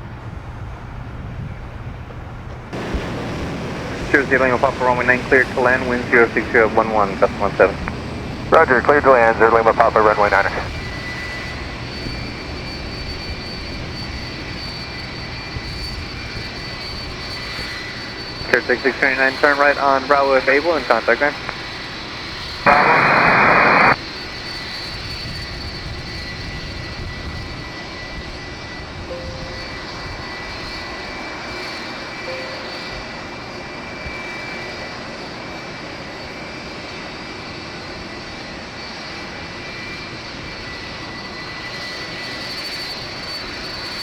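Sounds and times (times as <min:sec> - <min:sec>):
high turbine whine: 0:00.0 - 0:36.6
jet engines rumbling hiss: 0:00.1 - 0:27.6
radio static burst: 0:04.1 - 0:07.9, 0:08.5 - 0:10.8, 0:18.5 - 0:21.4, 0:22.7 - 0:24.0.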